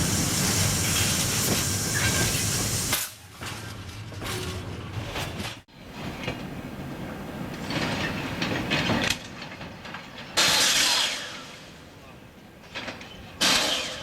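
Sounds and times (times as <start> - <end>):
loud air hiss: 0.0 - 3.0
freight wagons rumbling and clattering: 0.0 - 10.7, 11.7 - 14.0.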